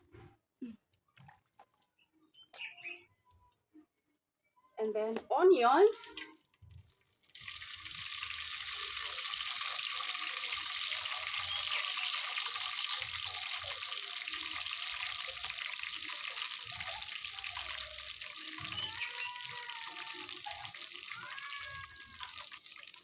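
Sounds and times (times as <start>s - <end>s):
onions sizzling in oil: 7.2s - 23.0s.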